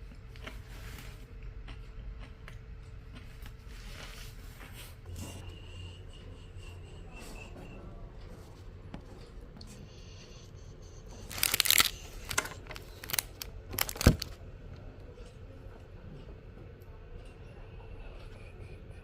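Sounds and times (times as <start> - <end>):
crinkling and rustling handling noise: 11.1 - 14.4.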